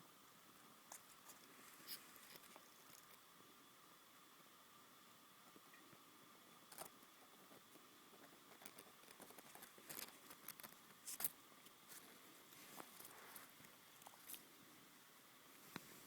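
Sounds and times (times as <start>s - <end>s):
faint hum: 0.0s - 16.0s
quiet steady hiss: 0.0s - 16.0s
faint clicks and rustles: 0.8s - 3.3s, 6.6s - 14.6s.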